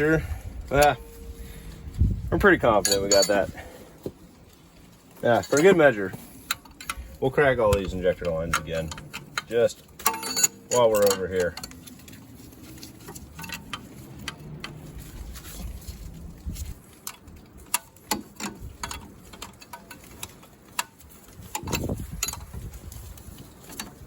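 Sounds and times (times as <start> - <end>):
low rumbles: 0.0 - 17.7
wrench clicking on metal fittings: 6.5 - 11.8.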